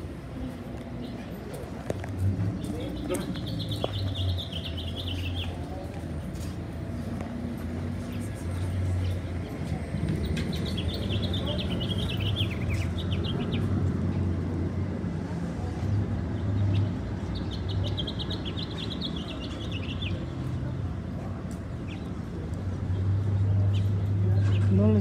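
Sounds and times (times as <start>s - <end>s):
songbird chattering chirps: 2.6s - 5.7s, 10.2s - 13.8s.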